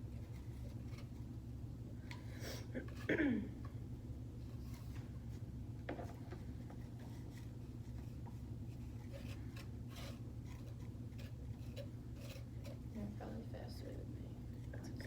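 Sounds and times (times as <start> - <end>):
wooden sticks scraping: 0.0 - 1.3, 4.4 - 13.4
steady low hum: 0.0 - 15.0.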